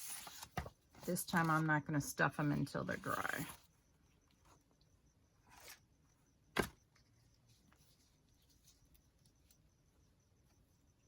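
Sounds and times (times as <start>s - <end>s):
soft paper rustle: 7.1s - 9.6s.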